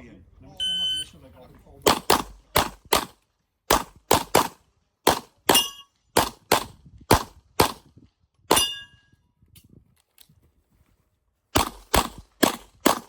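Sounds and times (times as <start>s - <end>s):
rapid gunfire: 1.9s - 5.3s, 6.2s - 7.8s, 11.6s - 13.0s
steel target ringing: 5.5s - 5.9s, 8.5s - 9.1s.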